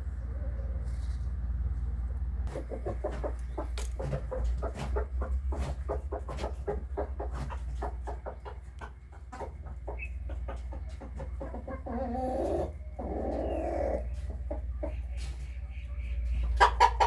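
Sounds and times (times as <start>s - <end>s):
steady low rumble: 0.0s - 11.8s
chickens clucking: 0.0s - 17.0s.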